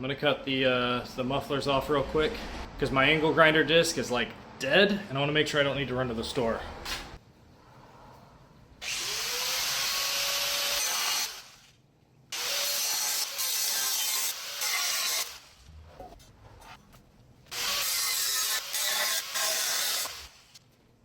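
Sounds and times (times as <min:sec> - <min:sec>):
angle grinder cutting metal: 0:08.8 - 0:11.6, 0:12.4 - 0:15.5, 0:17.5 - 0:20.6.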